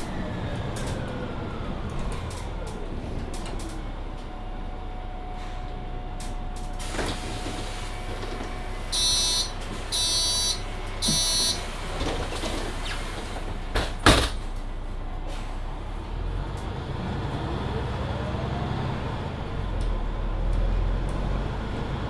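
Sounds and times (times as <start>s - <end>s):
bus doors shutting: 0.0s - 22.0s
bus pulling away: 0.0s - 22.0s
bus door warning beeps: 6.8s - 13.1s.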